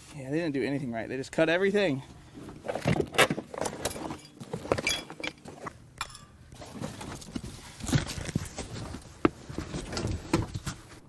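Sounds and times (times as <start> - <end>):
car carpet rustling: 2.4 - 5.7.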